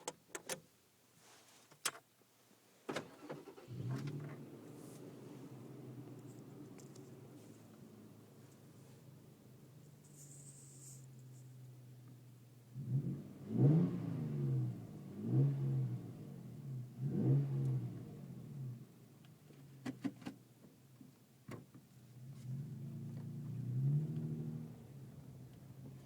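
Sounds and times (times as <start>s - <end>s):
truck engine idling and revving: 3.4s - 19.0s, 22.1s - 26.0s.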